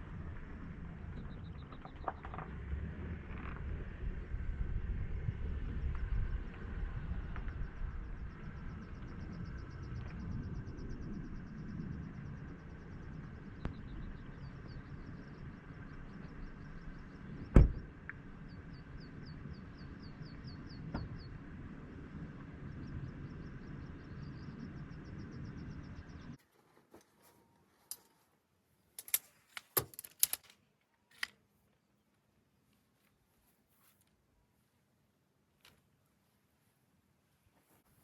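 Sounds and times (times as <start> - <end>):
low wind rumble: 0.0 - 26.4
heavy thump: 17.5 - 17.8.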